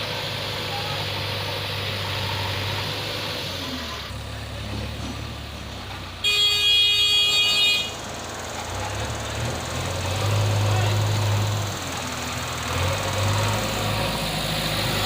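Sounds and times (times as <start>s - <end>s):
diesel engine running: 0.0s - 15.0s
vehicle horn blast: 6.2s - 8.0s.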